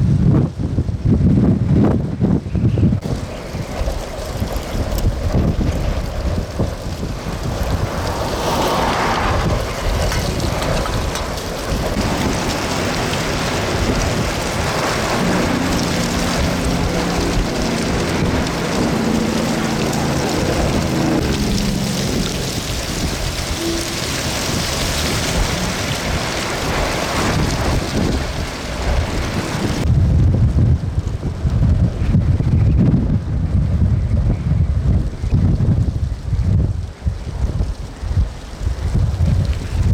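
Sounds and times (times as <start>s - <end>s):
strong wind buffeting microphone: 0.0s - 39.9s
low drone with several pitches: 15.2s - 26.4s.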